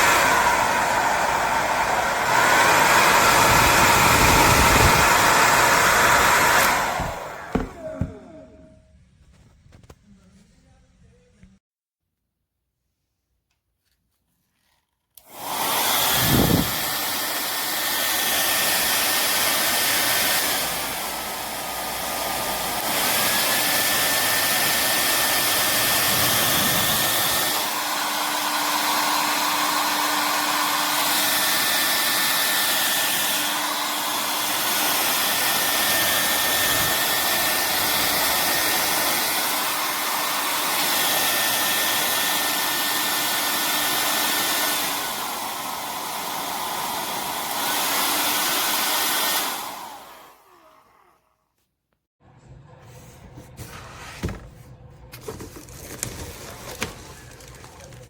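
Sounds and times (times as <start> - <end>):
hair dryer running: 0.0 - 8.8, 15.2 - 51.3.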